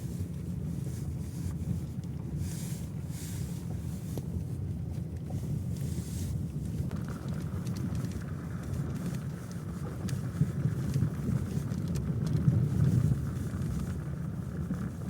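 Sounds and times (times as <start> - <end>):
car road rumble: 0.0 - 15.0.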